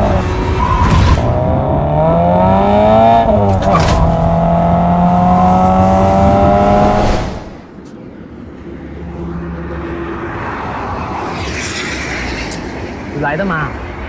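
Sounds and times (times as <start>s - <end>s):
car engine accelerating: 0.0s - 7.6s.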